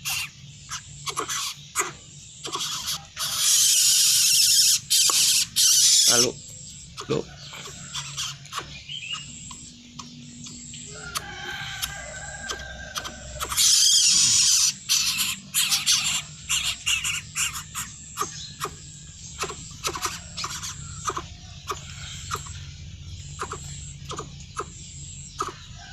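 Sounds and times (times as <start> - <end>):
bird calls: 0.0 - 25.9
bird clicking sounds: 4.9 - 5.8, 7.0 - 14.0, 19.4 - 22.6, 23.4 - 24.8, 25.4 - 25.6.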